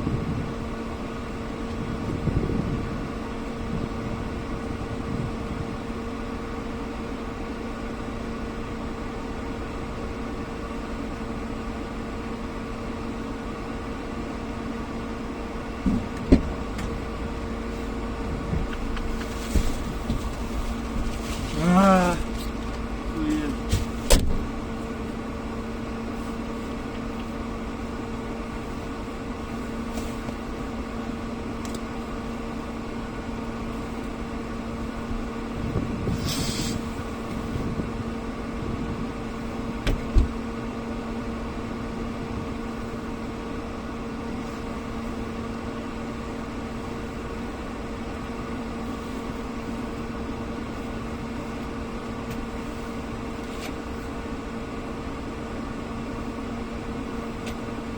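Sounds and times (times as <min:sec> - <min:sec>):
brief hiss: 0:36.1 - 0:37.0.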